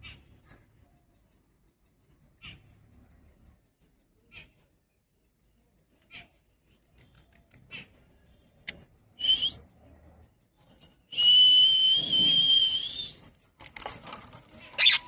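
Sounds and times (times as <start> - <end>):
parrot chirping and screeching: 14.6 - 15.0.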